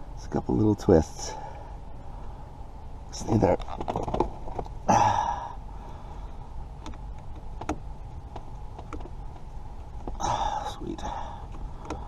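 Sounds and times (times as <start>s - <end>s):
breathy exhale: 4.9s - 6.5s, 10.2s - 12.0s.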